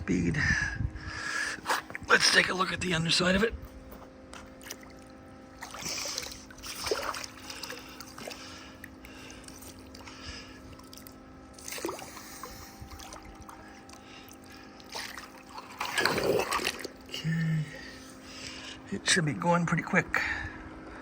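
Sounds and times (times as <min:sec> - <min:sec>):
faint steady hum: 0:00.0 - 0:21.0
pool water splashing: 0:04.4 - 0:17.5.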